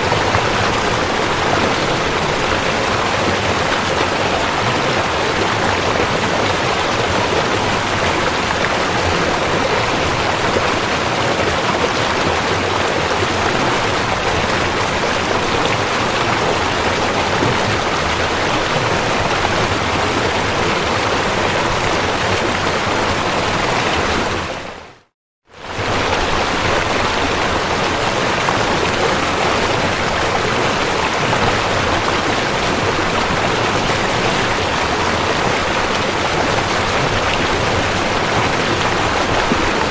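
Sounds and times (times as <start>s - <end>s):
river water rushing: 0.0s - 24.8s, 25.6s - 39.9s.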